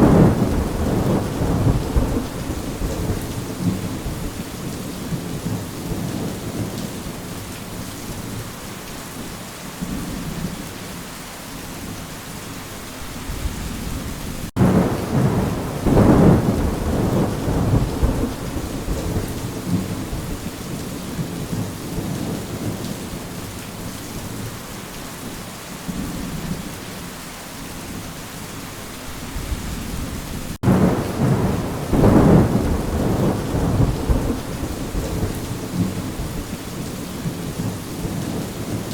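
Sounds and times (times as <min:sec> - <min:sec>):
thunder rumbling: 0:00.0 - 0:06.9, 0:13.3 - 0:22.9, 0:29.4 - 0:38.9
steady rain: 0:00.0 - 0:38.9.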